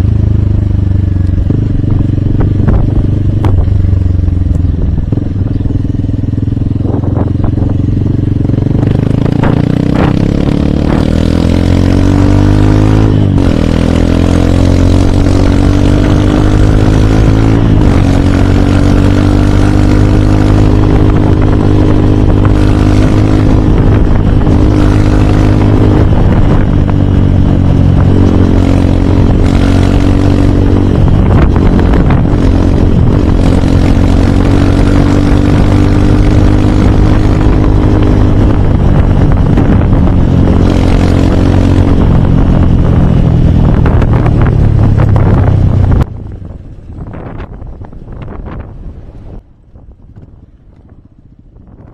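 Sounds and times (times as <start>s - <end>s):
motorcycle engine accelerating: 0.0s - 51.9s.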